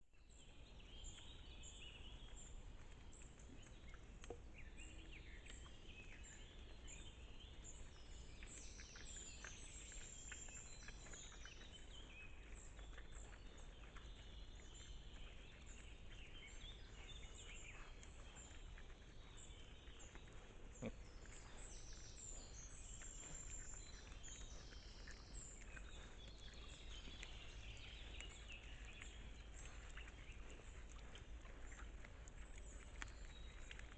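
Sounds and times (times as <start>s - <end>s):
birds chirping and whistling: 4.6s - 33.9s.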